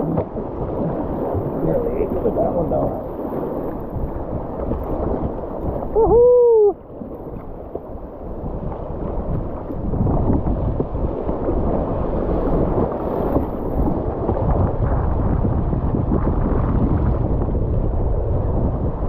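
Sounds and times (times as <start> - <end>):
rushing whitewater: 0.0 - 6.9
wind buffeting microphone: 0.0 - 19.0.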